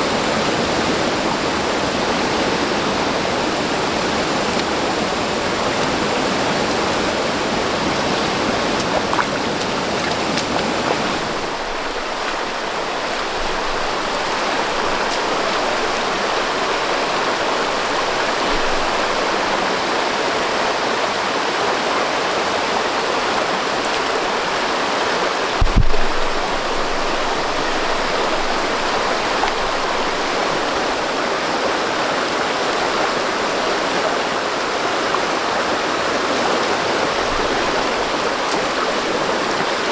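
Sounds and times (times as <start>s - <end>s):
running water rushing: 0.0s - 39.9s
low thump: 25.6s - 27.2s.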